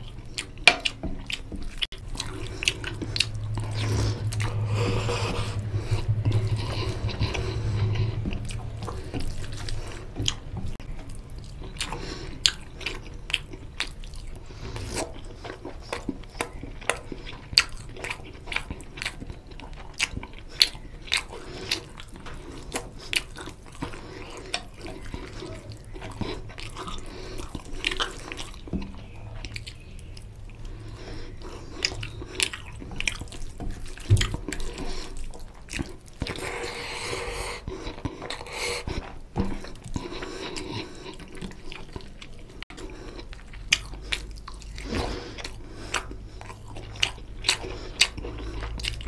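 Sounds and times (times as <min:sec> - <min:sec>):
wet chewing and lip-smacking: 0:00.0 - 0:49.0.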